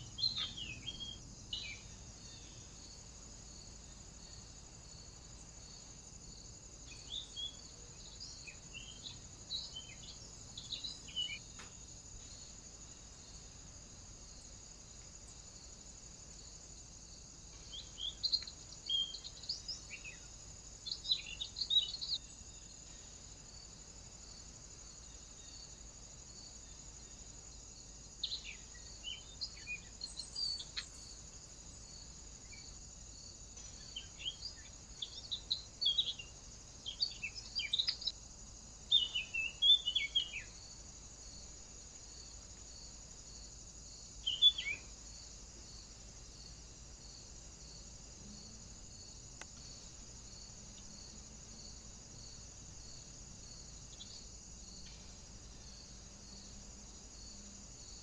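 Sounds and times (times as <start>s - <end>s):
wild birds chirping: 0.0s - 13.4s, 17.5s - 23.2s, 28.2s - 40.8s, 43.4s - 46.5s.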